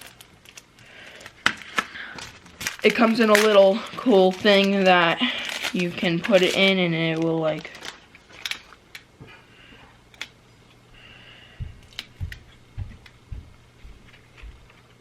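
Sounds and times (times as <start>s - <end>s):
plastic items clicking: 0.0s - 9.1s
soft low thumps: 11.6s - 14.7s.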